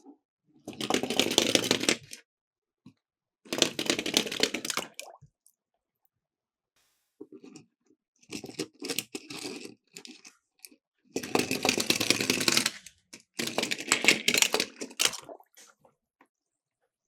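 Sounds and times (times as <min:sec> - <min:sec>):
toy cars rattling down a slope: 0:11.2 - 0:12.8.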